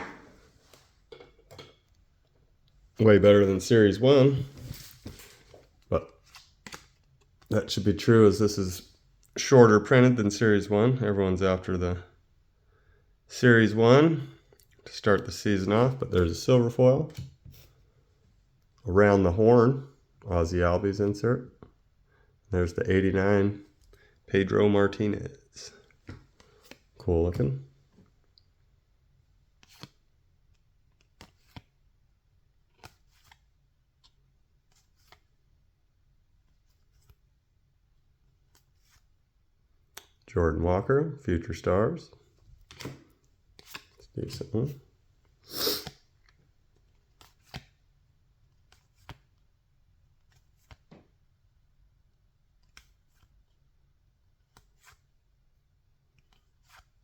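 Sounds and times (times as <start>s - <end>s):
cardboard cards flicking and sliding: 4.3s - 7.5s, 29.6s - 30.0s, 30.9s - 31.8s, 32.7s - 35.4s, 36.5s - 37.3s, 38.4s - 39.2s, 42.6s - 44.8s, 45.6s - 47.8s, 48.4s - 49.4s, 50.1s - 51.2s, 52.6s - 53.6s, 54.4s - 55.1s, 56.1s - 57.0s
trading cards flicking and tapping: 5.6s - 7.5s.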